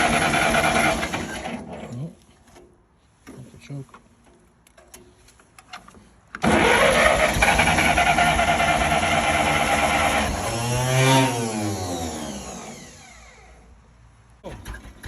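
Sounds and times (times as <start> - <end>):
tractor engine running roughly: 0.0 - 1.7, 6.4 - 11.0, 14.4 - 15.0
tractor starter cranking: 0.0 - 2.6, 4.7 - 13.4, 14.4 - 15.0.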